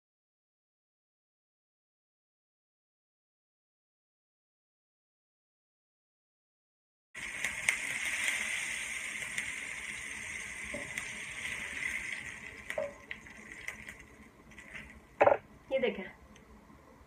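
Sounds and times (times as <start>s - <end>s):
patty sizzling in hot oil: 7.2s - 15.0s.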